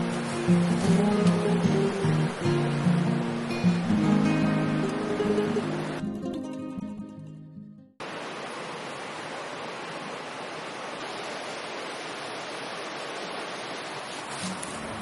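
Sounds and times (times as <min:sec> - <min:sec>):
music: 0:00.0 - 0:08.0.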